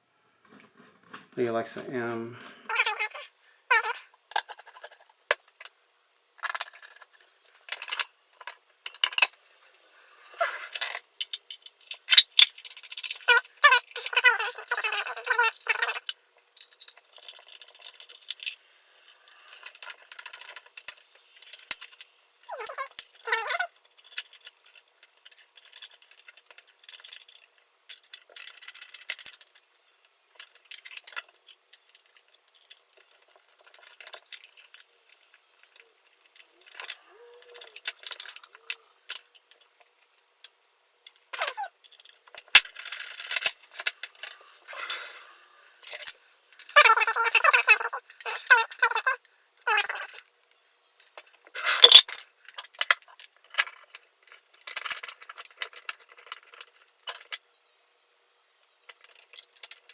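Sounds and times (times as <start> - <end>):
brief voice fragments: 2.7 - 4.0
metal parts and tools clinking: 2.7 - 5.8, 6.4 - 9.4, 10.4 - 40.1, 41.0 - 57.4, 58.6 - 59.9.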